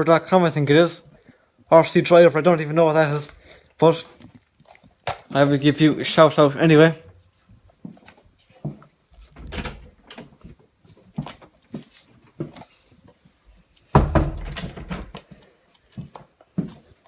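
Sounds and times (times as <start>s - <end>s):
objects knocking and clattering: 13.9s - 15.3s.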